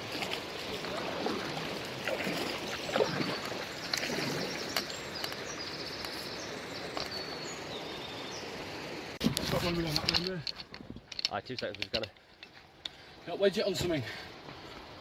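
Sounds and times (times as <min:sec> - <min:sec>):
kayak paddle splashes and knocks: 0:00.0 - 0:06.2
river water rushing: 0:00.0 - 0:10.3
small birds chirping: 0:02.4 - 0:10.4.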